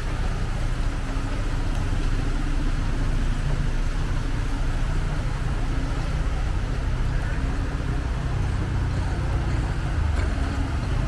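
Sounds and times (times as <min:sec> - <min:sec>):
vehicle traffic rumble: 0:00.0 - 0:11.0.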